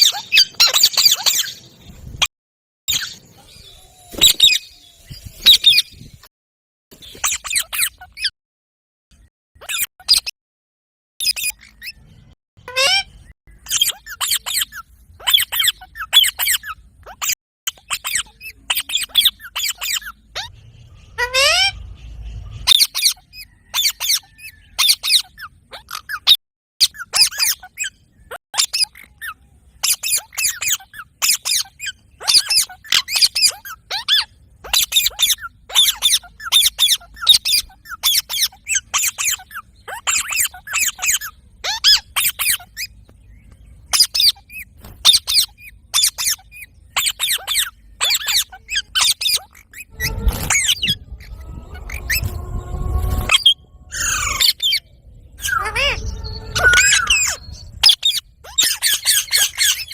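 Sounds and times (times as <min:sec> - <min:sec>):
parrot squeaky chirps: 0:00.0 - 0:01.6, 0:02.9 - 0:06.0, 0:07.0 - 0:08.3, 0:09.6 - 0:10.3, 0:11.2 - 0:21.9, 0:22.6 - 0:43.0, 0:43.9 - 0:59.9
parrot rising whistle: 0:49.8 - 0:58.2.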